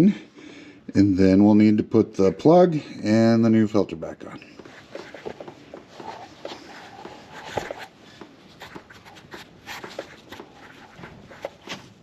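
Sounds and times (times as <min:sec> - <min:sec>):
faint background hiss: 0:00.0 - 0:12.0
rustling handling noise: 0:04.4 - 0:12.0.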